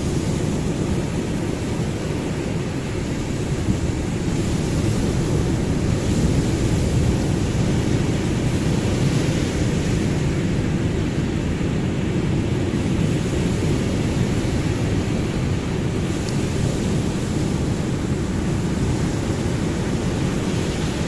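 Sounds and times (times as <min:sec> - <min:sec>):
ocean waves breaking: 0:00.0 - 0:21.0.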